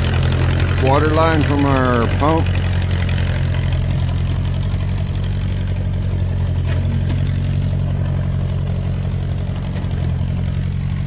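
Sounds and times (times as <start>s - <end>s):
tractor engine running: 0.0s - 11.0s
faint metal clanks: 6.1s - 10.2s.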